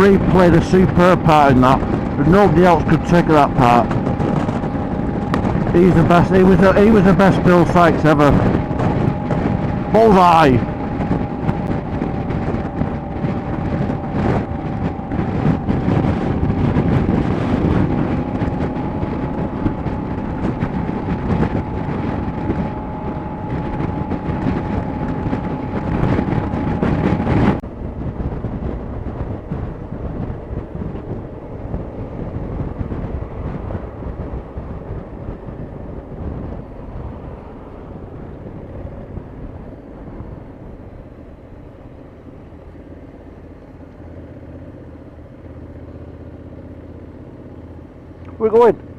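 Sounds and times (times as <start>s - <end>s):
motorcycle engine: 0.0s - 48.9s
steady whine: 0.0s - 48.9s
wind noise: 0.0s - 48.9s.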